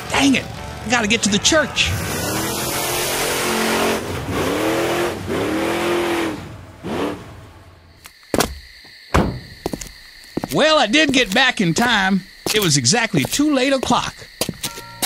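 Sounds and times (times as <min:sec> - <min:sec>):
engine accelerating through gears: 0:00.0 - 0:07.8
sharp knock: 0:08.4 - 0:09.6.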